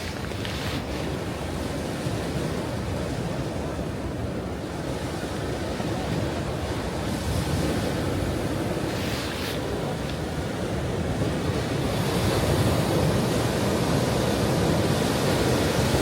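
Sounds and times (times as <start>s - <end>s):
waves breaking on shore: 0.0s - 16.0s
hiss of wave up beach: 5.9s - 16.0s.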